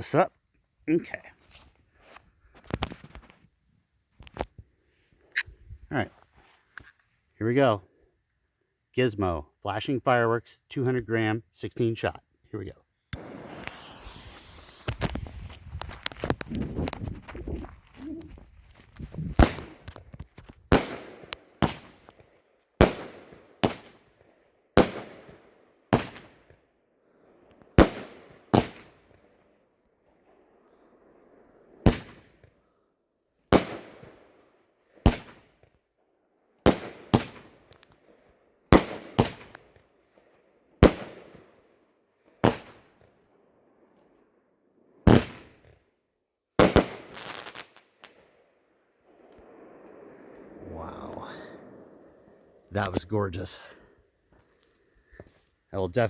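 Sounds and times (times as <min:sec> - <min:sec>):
firework bangs: 0:13.2 - 0:22.2, 0:22.8 - 0:24.2, 0:24.8 - 0:26.4, 0:27.7 - 0:29.0, 0:38.7 - 0:39.5, 0:45.1 - 0:45.6, 0:46.6 - 0:48.2.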